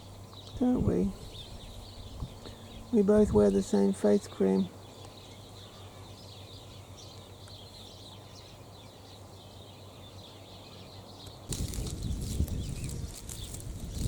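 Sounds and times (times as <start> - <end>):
faint birds chirping: 0.0 - 14.0
loud rustling crackling: 11.4 - 14.0.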